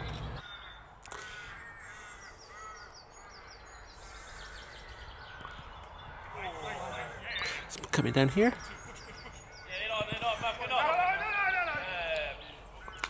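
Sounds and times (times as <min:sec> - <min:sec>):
crow-like caws: 0:00.4 - 0:07.6
high bird chirps: 0:07.2 - 0:13.0.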